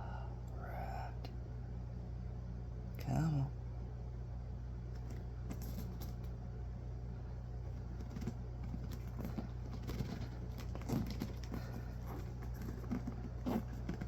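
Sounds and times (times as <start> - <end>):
steady low hum: 0.0 - 14.0
packaging clicks and rustles: 8.0 - 14.0.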